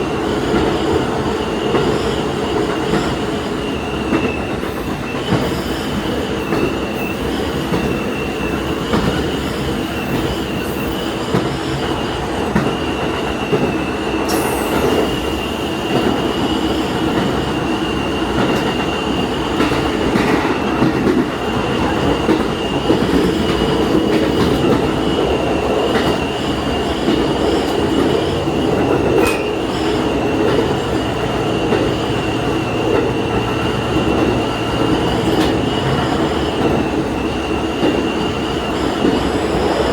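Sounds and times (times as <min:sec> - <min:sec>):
train engine and wheels rumbling: 0:00.0 - 0:39.9.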